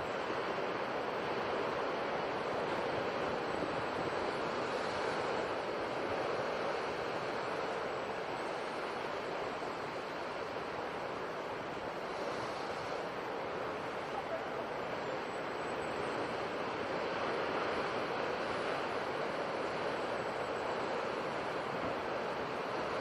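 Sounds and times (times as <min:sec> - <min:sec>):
sea surf washing in: 0:00.0 - 0:23.0.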